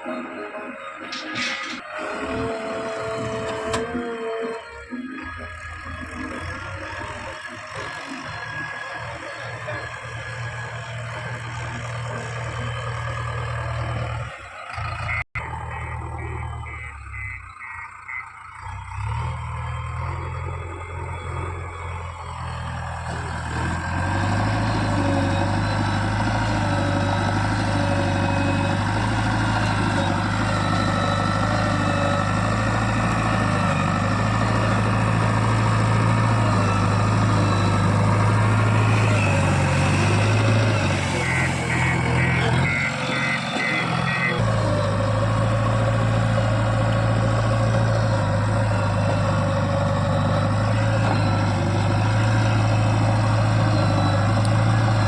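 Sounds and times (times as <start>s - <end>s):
diesel engine running: 0.0s - 55.0s
short high beeps: 40.7s - 44.4s.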